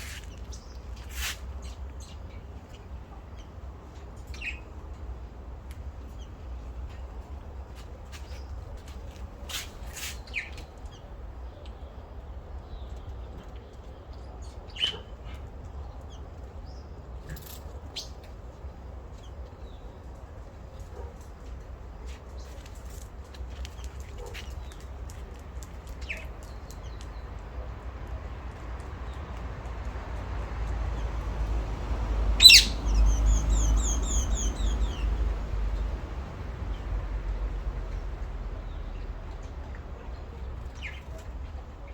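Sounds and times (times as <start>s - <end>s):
small birds chirping: 0.0s - 4.8s, 8.1s - 11.7s, 12.6s - 21.1s, 22.0s - 27.5s, 30.6s - 35.9s, 37.9s - 41.9s.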